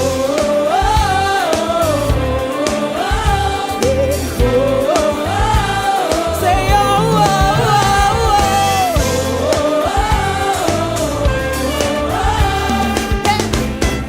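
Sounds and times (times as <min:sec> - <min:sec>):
band bass and drums: 0:00.0 - 0:02.5, 0:03.1 - 0:14.0
person singing long gliding notes: 0:06.4 - 0:09.3.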